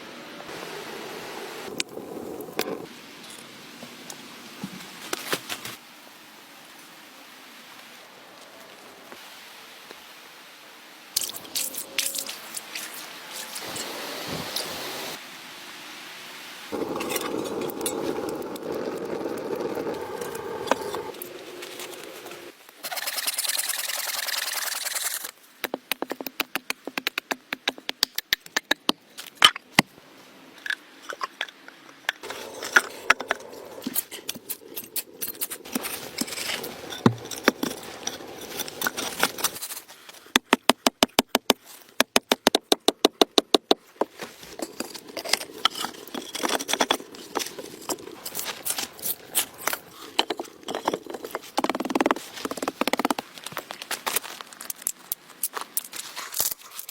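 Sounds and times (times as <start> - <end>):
knocks and scrapes of materials: 32.2 - 54.4.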